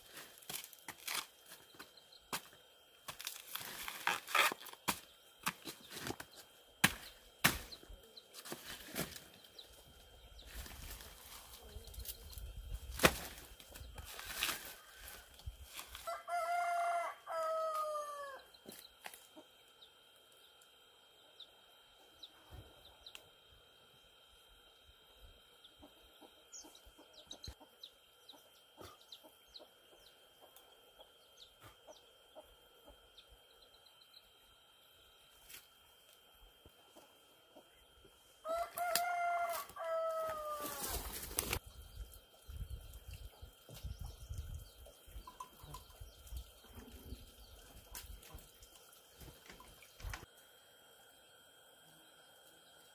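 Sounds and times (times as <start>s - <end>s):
rooster crowing: 14.3s - 18.5s, 38.4s - 41.2s.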